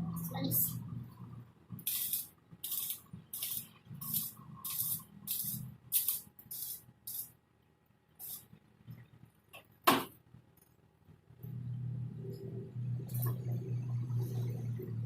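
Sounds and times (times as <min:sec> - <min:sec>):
short hissing spray bursts: 0:01.8 - 0:07.4, 0:08.2 - 0:08.5.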